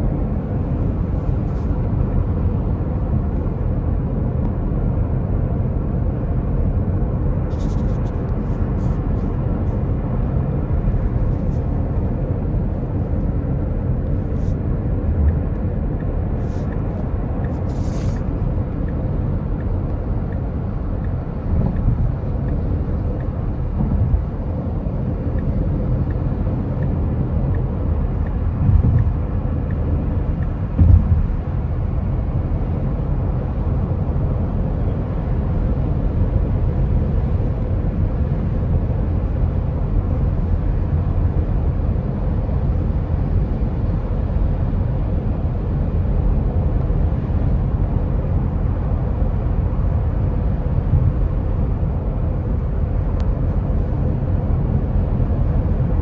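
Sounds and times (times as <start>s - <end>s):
road and tyre rumble: 0.0s - 56.0s.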